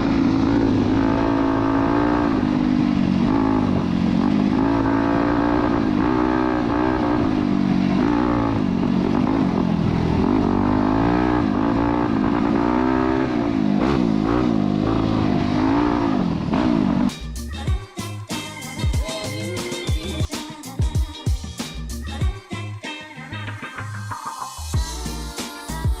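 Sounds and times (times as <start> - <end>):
dirt bike engine revving: 0.0 - 17.1.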